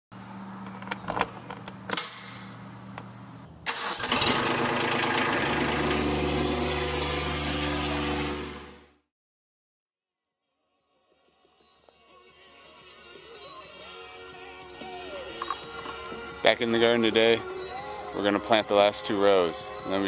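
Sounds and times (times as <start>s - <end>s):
engine cranking and running: 3.7s - 8.8s.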